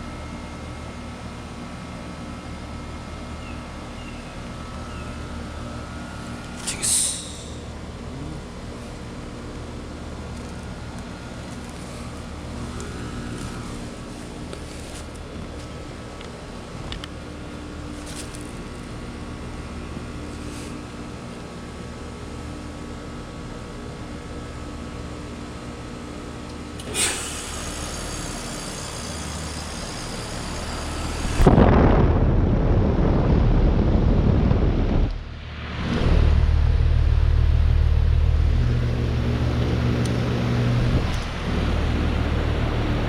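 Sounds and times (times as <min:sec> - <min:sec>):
heat pump hum: 0:00.0 - 0:43.0
hissing refrigerant: 0:00.0 - 0:43.0
loud rushing noise: 0:30.7 - 0:39.5.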